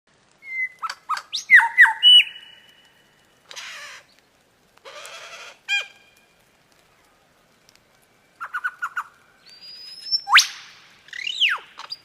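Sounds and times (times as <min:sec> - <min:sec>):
bird squawking: 0:00.4 - 0:02.7, 0:03.5 - 0:04.1, 0:08.4 - 0:12.0.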